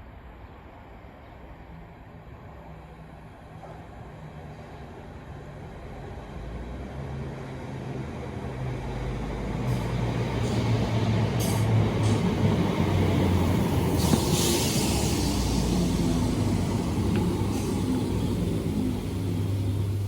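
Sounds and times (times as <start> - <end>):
brake hiss: 11.4 - 20.0
air hisses: 13.6 - 18.4
electric train motor hum: 15.4 - 20.0.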